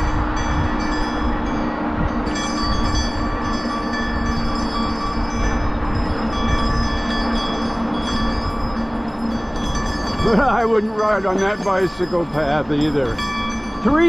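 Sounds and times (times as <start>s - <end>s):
bicycle rumbling on rough road: 0.0s - 14.0s.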